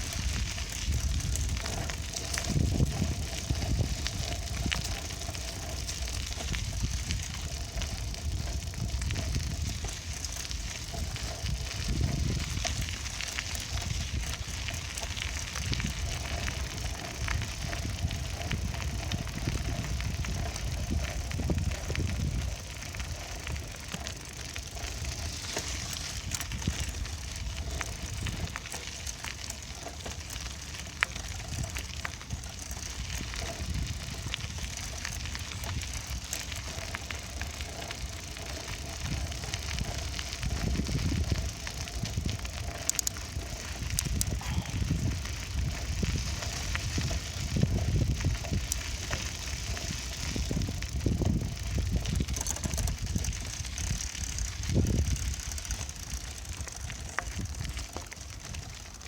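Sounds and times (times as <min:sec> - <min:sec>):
bicycle tyres rolling: 0:00.0 - 0:59.0
bike clicks and rattles: 0:00.0 - 0:59.0
wind buffeting microphone: 0:00.0 - 0:59.0.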